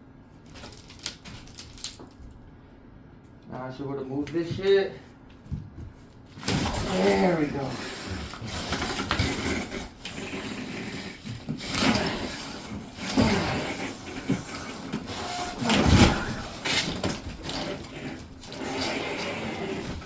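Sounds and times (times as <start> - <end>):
cardboard rustling and scraping: 6.3 - 20.0.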